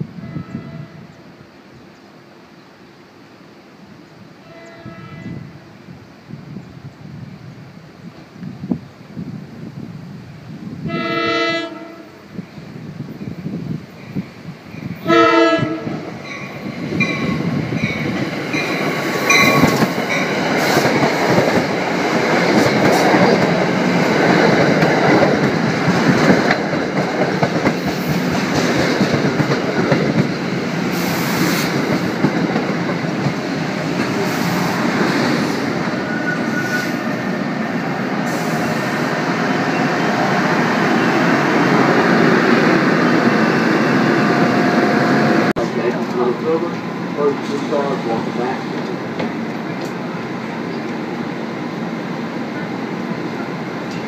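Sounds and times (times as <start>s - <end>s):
train wheels rushing on rails: 4.1s - 54.0s.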